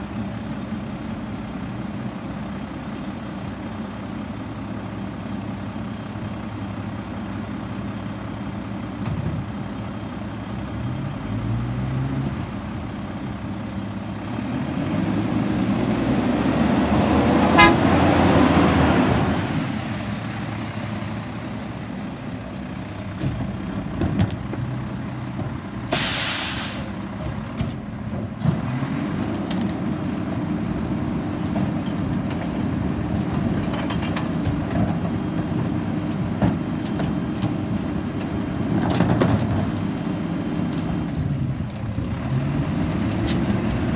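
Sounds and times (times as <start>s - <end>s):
diesel truck engine running: 0.0s - 43.9s
vehicle passing: 14.5s - 19.5s
air brake hiss: 25.9s - 27.1s.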